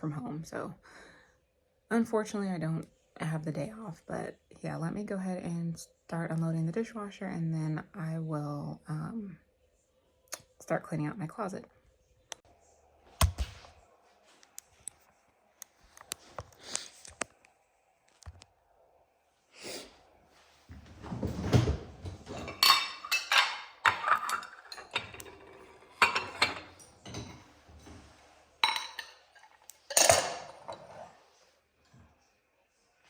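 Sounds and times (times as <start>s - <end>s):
dishes and cutlery clinking: 21.0s - 31.2s.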